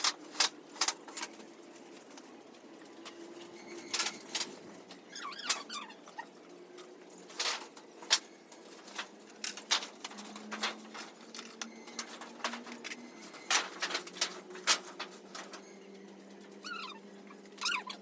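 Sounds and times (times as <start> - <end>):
chickens tapping and clicking: 7.3 - 16.3.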